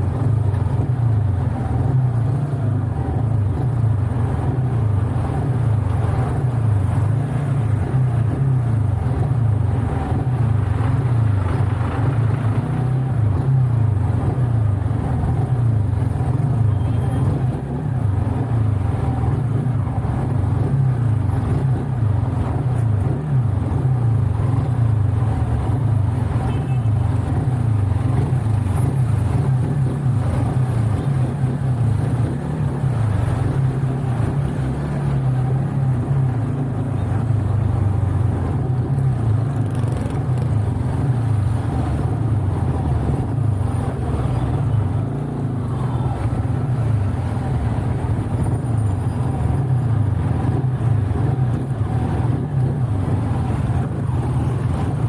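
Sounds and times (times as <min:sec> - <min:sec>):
motorcycle engine drone: 0:00.0 - 0:55.0
road and wind noise: 0:00.0 - 0:55.0.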